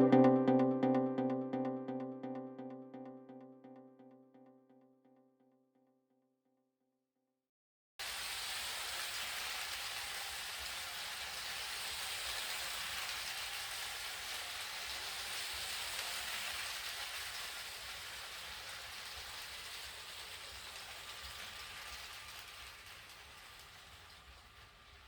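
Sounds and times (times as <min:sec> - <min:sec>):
steady hiss like rain: 0:08.0 - 0:25.0.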